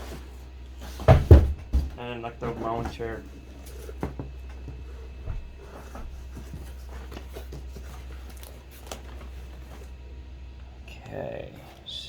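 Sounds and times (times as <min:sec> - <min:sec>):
steady low hum: 0:00.0 - 0:12.0
packaging rustling: 0:05.1 - 0:10.0.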